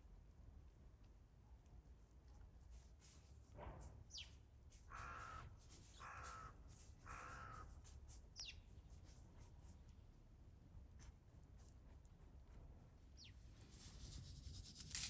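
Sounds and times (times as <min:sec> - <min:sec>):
crow cawing: 0:04.9 - 0:07.7.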